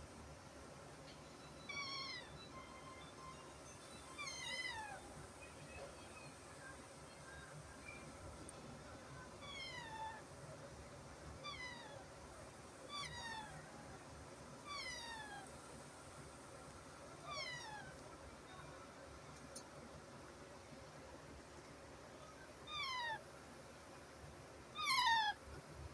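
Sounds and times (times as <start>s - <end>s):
parrot chick meow-like calls: 1.7s - 2.8s, 12.9s - 13.7s, 24.8s - 25.4s.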